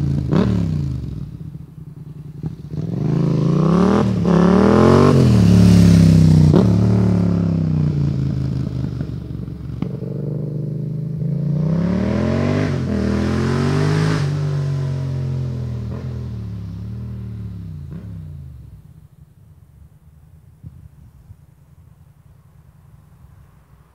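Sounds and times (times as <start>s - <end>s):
motorcycle engine revving: 0.0s - 19.1s.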